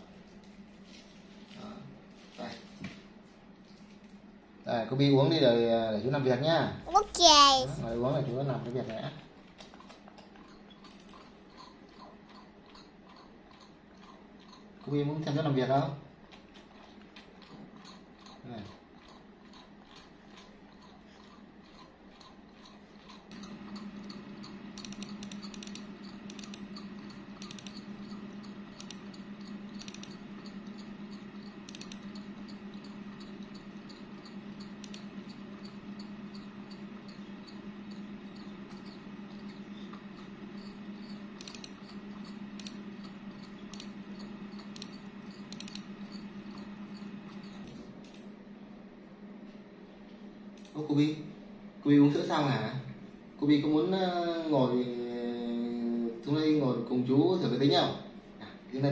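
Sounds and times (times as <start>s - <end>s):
computer fans humming: 0.0s - 58.9s
keyboard and mouse clicks: 23.1s - 35.1s, 40.2s - 48.2s.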